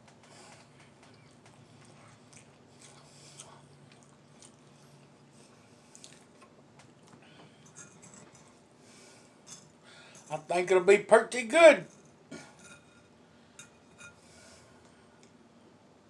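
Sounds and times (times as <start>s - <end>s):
faint chewing with wet smacks: 0.0s - 8.6s.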